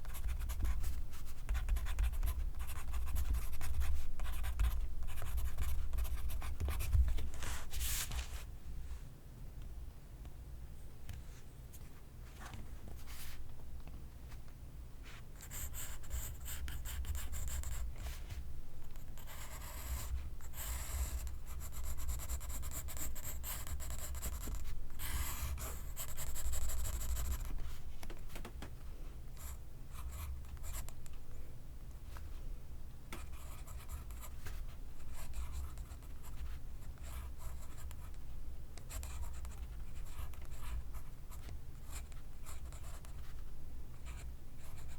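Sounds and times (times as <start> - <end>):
pencil scratching on paper: 19.2 - 27.5.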